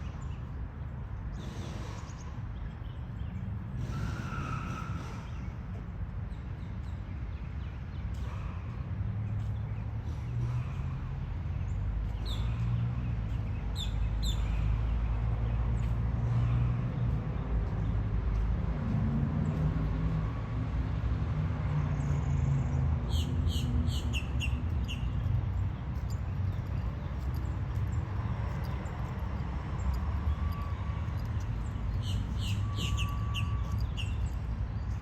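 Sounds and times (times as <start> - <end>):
steady low rumble: 24.0 - 35.0
small bird chirping: 29.6 - 35.0.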